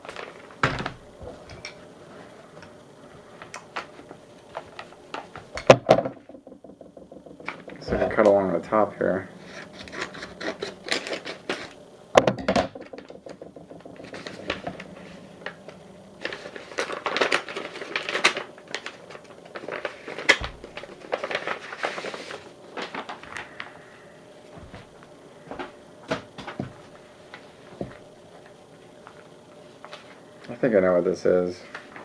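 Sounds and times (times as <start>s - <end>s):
paper rustling and crinkling: 0.0s - 5.6s, 14.1s - 23.8s.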